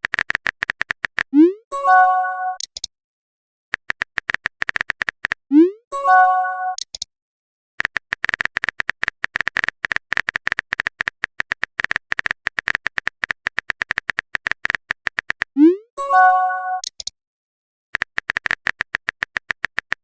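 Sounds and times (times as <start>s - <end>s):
phone keyboard tapping clicks: 0.0s - 1.3s, 3.8s - 5.4s, 7.8s - 15.5s, 18.0s - 20.0s.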